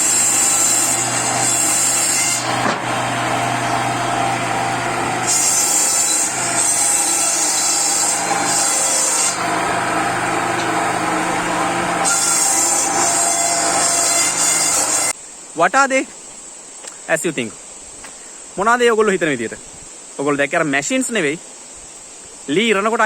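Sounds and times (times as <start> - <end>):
power saw motor hum: 0.0 - 15.1
saw blade hissing in wood: 0.0 - 15.2.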